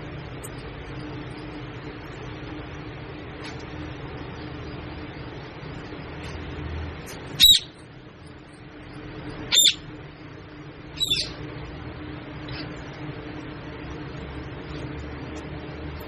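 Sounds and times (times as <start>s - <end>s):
steady low hum: 0.0s - 16.0s
parrot squawking: 7.4s - 7.8s, 9.5s - 9.9s, 11.0s - 11.4s.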